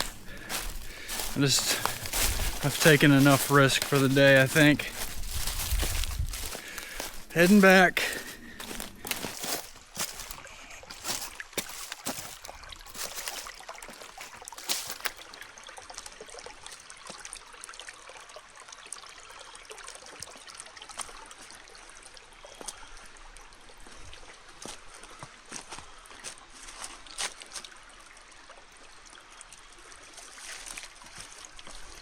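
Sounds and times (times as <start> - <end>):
footsteps through dry leaves: 0.0 - 15.2
creek trickling: 0.0 - 32.0.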